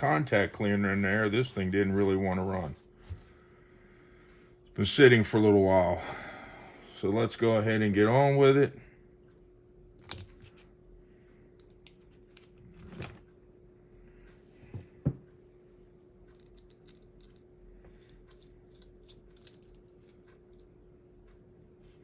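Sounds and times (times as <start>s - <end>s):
faint steady hum: 0.0s - 22.0s
small parts clicking and tapping: 10.0s - 10.7s, 16.3s - 20.8s.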